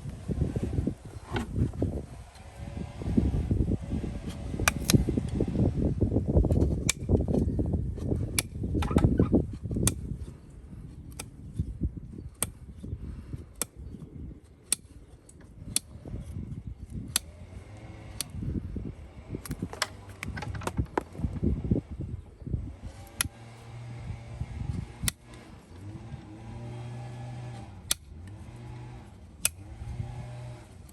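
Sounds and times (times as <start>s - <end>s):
tools scraping horse hoof: 4.2s - 5.4s, 6.4s - 18.6s, 19.4s - 21.5s, 22.2s - 24.0s
sharp snaps: 4.6s - 5.4s.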